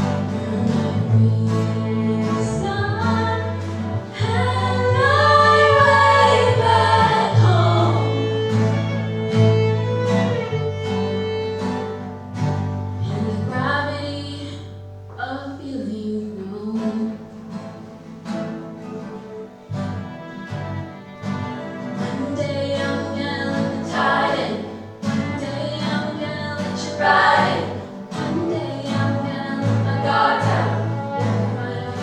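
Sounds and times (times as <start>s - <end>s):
voices singing together: 0.0s - 8.9s, 22.2s - 32.0s
held low bass notes: 0.0s - 10.8s
bowed strings: 0.0s - 15.2s, 15.8s - 32.0s
acoustic guitar: 0.0s - 32.0s.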